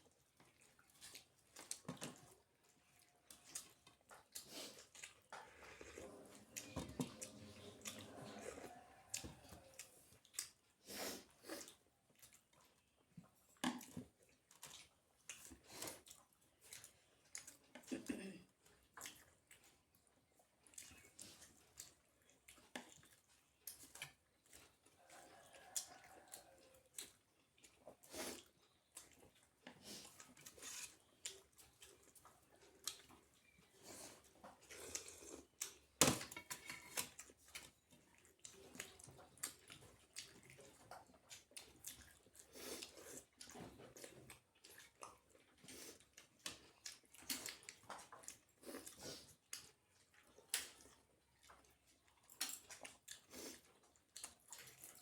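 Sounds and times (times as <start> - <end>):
wet chewing and mouth sounds: 0.0 - 55.0
soft mouth clicks and smacks: 9.1 - 10.6, 38.4 - 55.0.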